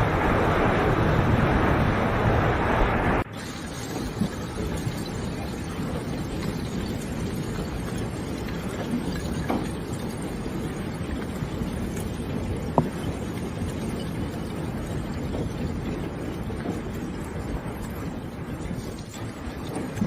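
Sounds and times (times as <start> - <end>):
low rushing noise: 0.0 - 3.4.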